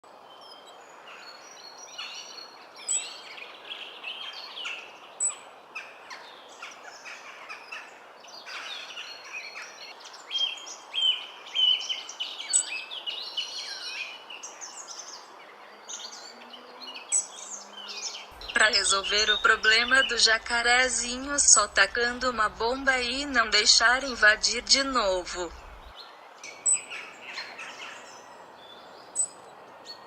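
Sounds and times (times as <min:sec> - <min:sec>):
birds singing and chirping: 0:00.2 - 0:30.0
steady background hiss: 0:17.0 - 0:30.0.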